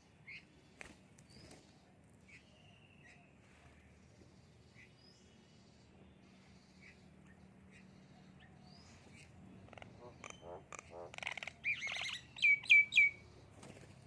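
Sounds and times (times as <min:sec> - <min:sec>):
birds rasping buzzy calls: 0:09.0 - 0:13.7.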